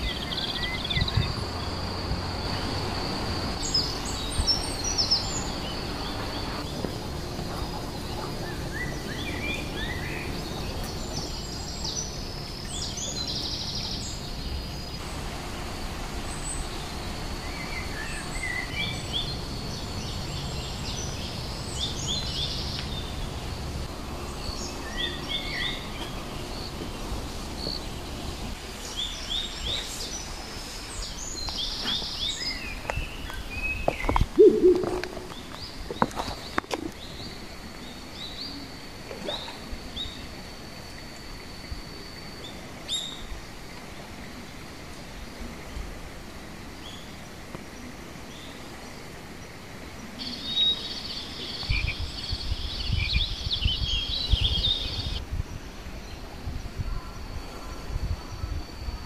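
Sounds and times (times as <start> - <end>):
low background rumble: 0.0 - 33.2
small birds chirping: 0.0 - 38.6, 50.0 - 55.2
brief low call: 34.4 - 35.5.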